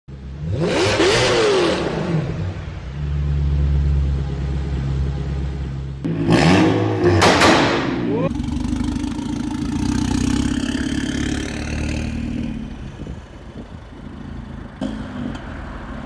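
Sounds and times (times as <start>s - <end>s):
turbo car engine revving: 0.2s - 2.6s, 6.0s - 15.7s.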